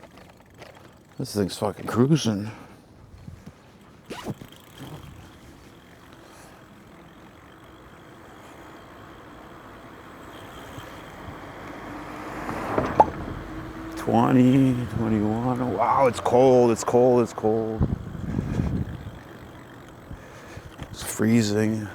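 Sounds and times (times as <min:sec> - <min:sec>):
tyre noise: 0:00.0 - 0:02.4, 0:03.0 - 0:21.9
faint electric motor whine: 0:03.2 - 0:21.9
wind rushing over microphone: 0:12.4 - 0:19.4.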